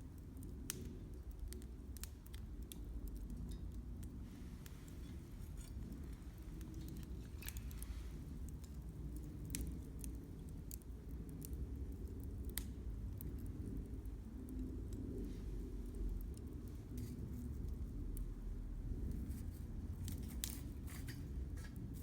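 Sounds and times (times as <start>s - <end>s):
campfire crackling: 0.0s - 22.0s
firewood pops and snaps: 3.1s - 11.4s, 19.1s - 22.0s.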